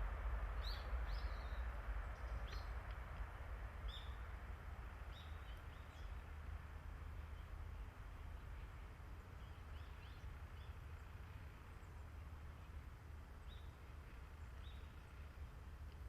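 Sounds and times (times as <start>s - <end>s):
small birds chirping: 0.6s - 2.8s, 5.0s - 6.4s, 7.1s - 12.8s, 13.4s - 15.6s.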